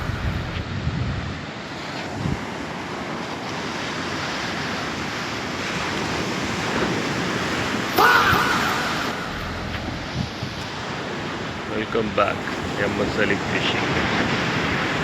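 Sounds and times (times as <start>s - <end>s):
sea surf washing onto beach: 0.0s - 15.0s
wind on microphone: 0.0s - 15.0s
call-like sound: 7.9s - 10.3s.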